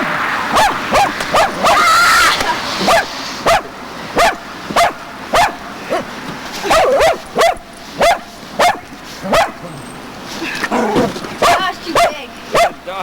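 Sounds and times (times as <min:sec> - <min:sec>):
dog barking: 0:00.5 - 0:01.8, 0:02.8 - 0:09.7, 0:11.4 - 0:12.9.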